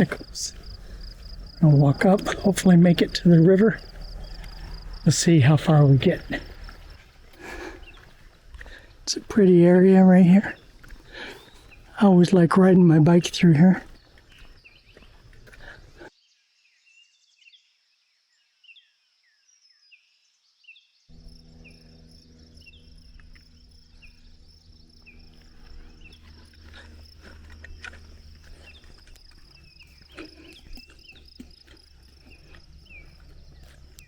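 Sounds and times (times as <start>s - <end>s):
low hum: 0.0s - 9.4s, 21.1s - 34.0s
crickets trilling: 0.0s - 16.1s, 21.1s - 34.0s.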